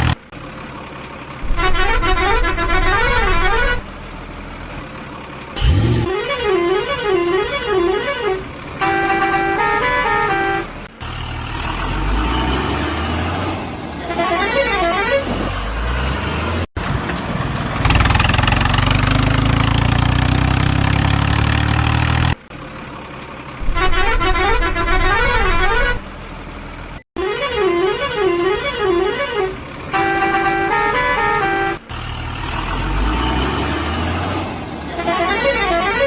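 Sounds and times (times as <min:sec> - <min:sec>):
heavy truck engine running: 0:00.0 - 0:36.0.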